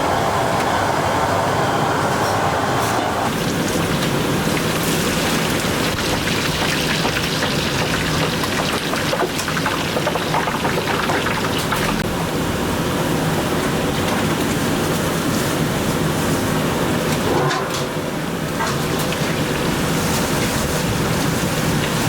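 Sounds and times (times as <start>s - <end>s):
food sizzling in hot oil: 3.3s - 11.9s.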